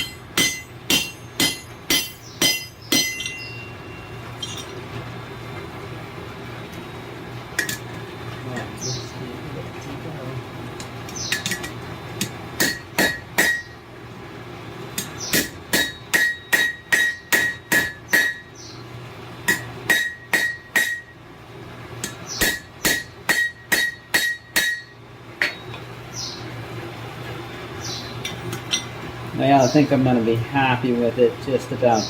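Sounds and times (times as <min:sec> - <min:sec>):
hammer ringing on hot steel: 0:00.0 - 0:04.8, 0:11.3 - 0:13.8, 0:15.0 - 0:18.6, 0:19.4 - 0:21.2, 0:22.0 - 0:25.8.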